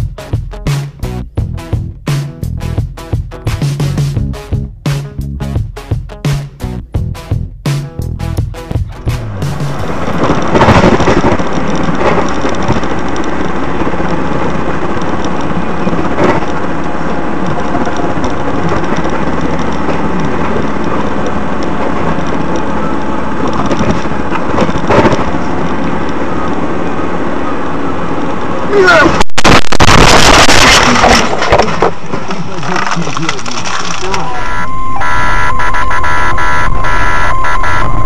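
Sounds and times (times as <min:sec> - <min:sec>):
loud rushing noise: 0:08.8 - 0:12.8, 0:26.7 - 0:31.2.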